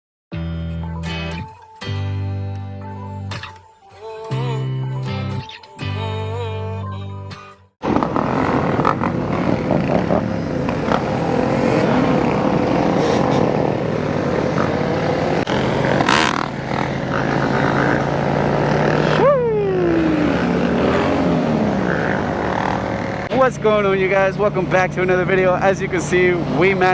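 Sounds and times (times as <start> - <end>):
motorcycle engines revving: 7.8 - 26.9.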